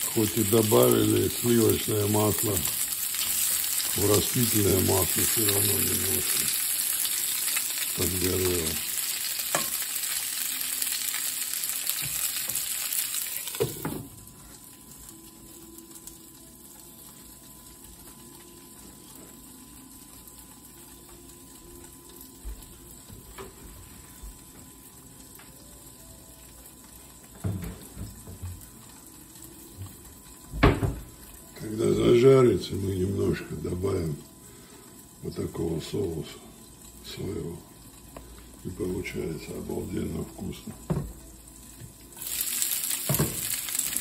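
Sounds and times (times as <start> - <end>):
dumplings sizzling in a skillet: 0.0 - 44.0.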